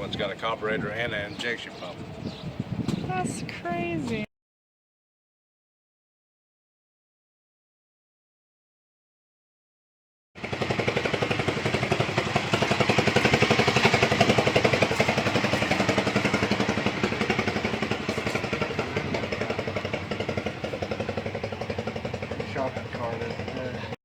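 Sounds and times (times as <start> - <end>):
old engine running: 10.4 - 24.0.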